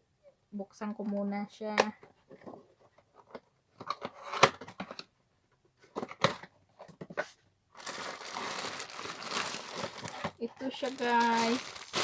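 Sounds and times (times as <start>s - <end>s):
packaging clicks: 7.8s - 12.0s
packaging tearing: 7.8s - 12.0s
wrapping crinkling: 7.8s - 12.0s.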